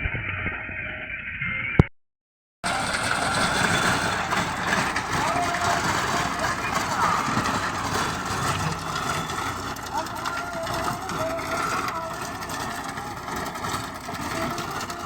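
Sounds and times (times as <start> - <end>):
tractor engine running: 2.6 - 15.0.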